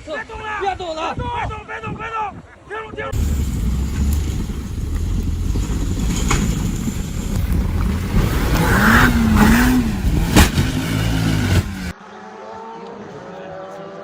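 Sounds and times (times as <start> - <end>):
vehicle engine and road noise: 3.2 - 12.0.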